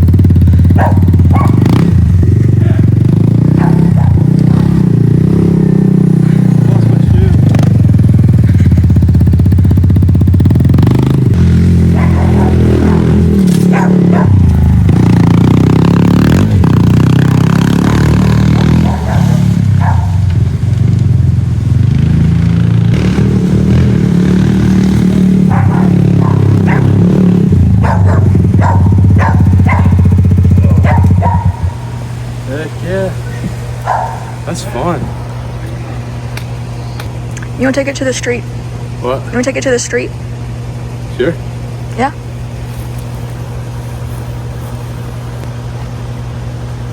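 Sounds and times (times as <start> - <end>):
dirt bike engine revving: 0.0 - 37.0, 37.6 - 45.5.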